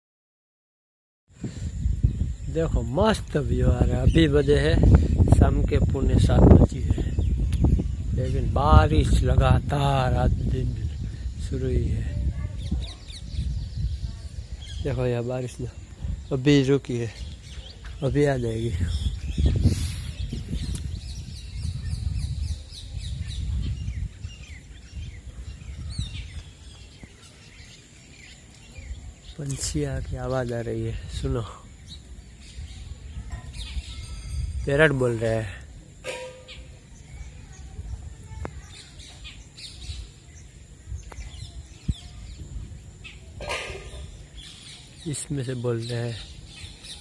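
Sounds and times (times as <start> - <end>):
birds chirping: 1.3 - 47.0.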